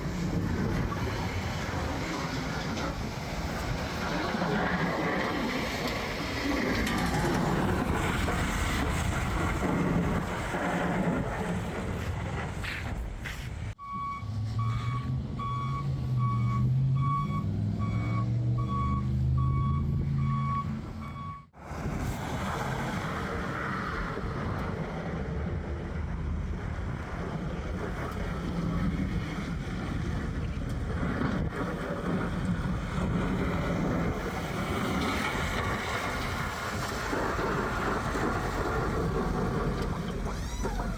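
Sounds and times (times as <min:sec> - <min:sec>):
truck reversing alarm beeping: 0:13.8 - 0:21.6.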